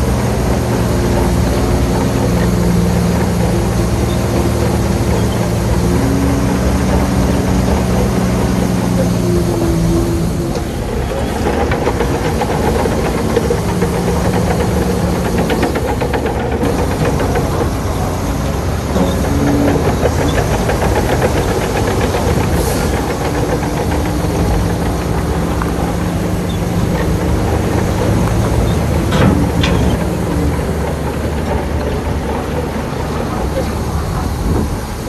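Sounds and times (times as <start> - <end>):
bulldozer diesel engine running: 0.0 - 35.0
metallic rattle: 11.2 - 34.4.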